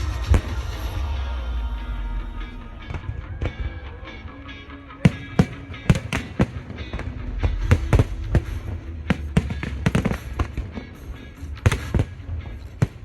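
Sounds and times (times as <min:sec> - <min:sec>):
fireworks bangs: 0:00.0 - 0:13.0
music playing: 0:00.0 - 0:13.0.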